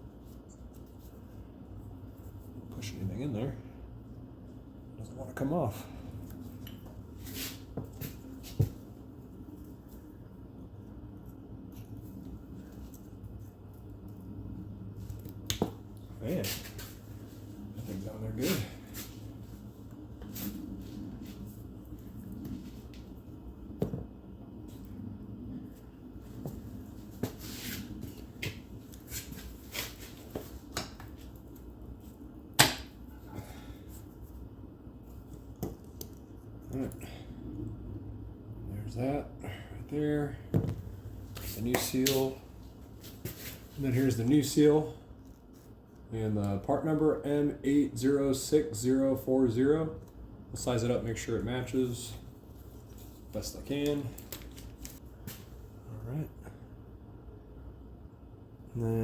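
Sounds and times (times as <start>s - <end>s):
low hum: 0.0s - 30.7s.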